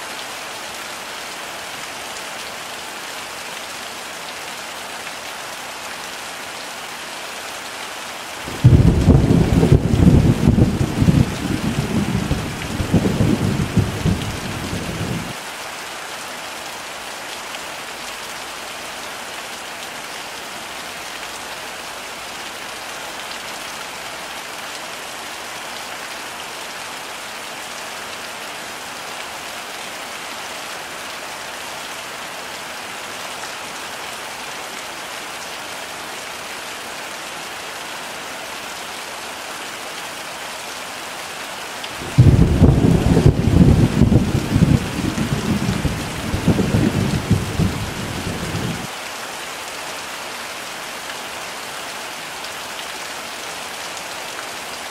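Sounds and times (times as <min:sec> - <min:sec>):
heavy rain falling: 0:00.0 - 0:54.9
rolling thunder rumble: 0:08.5 - 0:15.3, 0:42.0 - 0:48.9.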